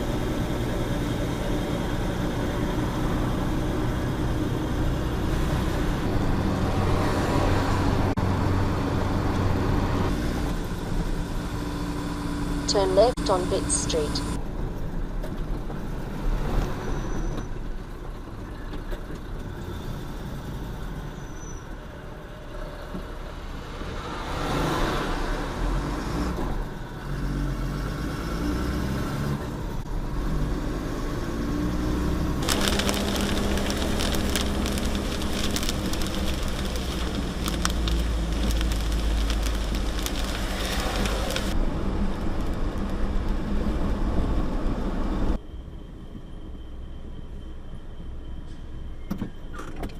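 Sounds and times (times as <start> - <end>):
road noise: 0.0 - 49.9
truck engine running: 7.8 - 14.4, 32.4 - 41.6.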